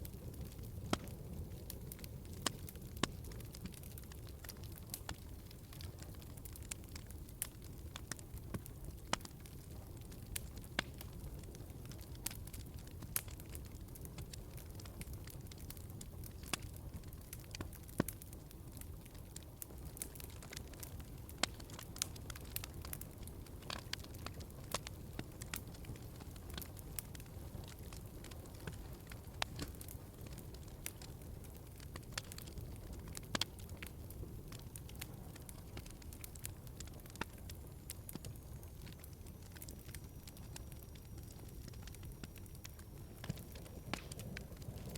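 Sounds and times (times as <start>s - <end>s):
wood fire crackling and popping: 0.0s - 44.9s.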